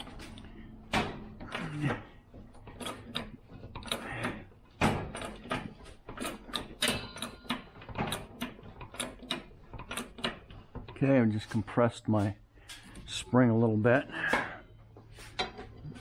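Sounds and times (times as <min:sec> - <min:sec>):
hand tools clanking on metal: 0:00.0 - 0:13.3
metallic ring: 0:06.8 - 0:07.8.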